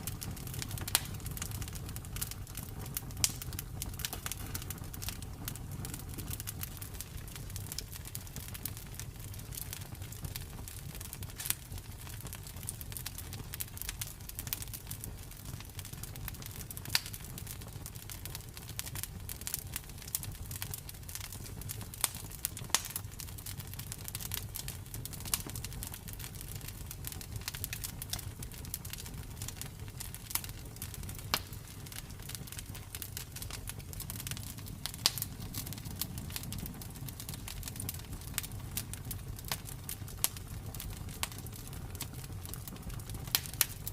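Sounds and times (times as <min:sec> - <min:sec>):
campfire crackling: 0:00.0 - 0:43.9
fire popping and snapping: 0:00.0 - 0:43.9.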